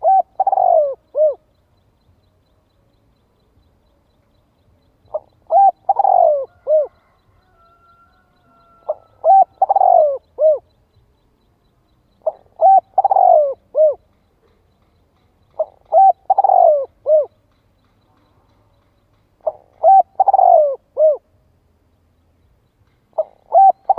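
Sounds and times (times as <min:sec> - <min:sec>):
dove cooing: 0:00.0 - 0:01.5, 0:05.1 - 0:07.2, 0:08.5 - 0:10.7, 0:12.2 - 0:14.2, 0:15.6 - 0:17.4, 0:19.4 - 0:21.3, 0:23.2 - 0:23.9.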